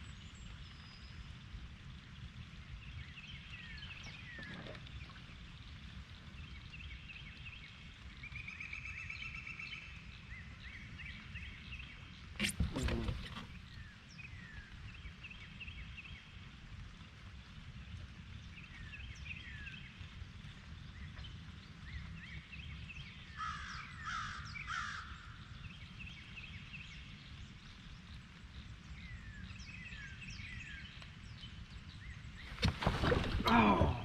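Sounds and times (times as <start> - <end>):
birds chirping: 12.4 - 14.0, 29.9 - 34.0
harsh bird calls: 32.5 - 34.0.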